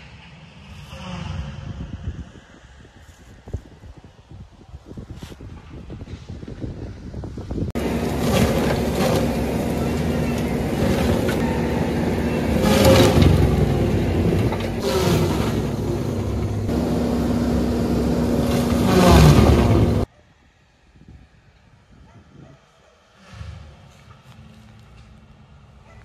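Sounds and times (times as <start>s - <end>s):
skid-steer loader running hard: 7.8s - 20.1s.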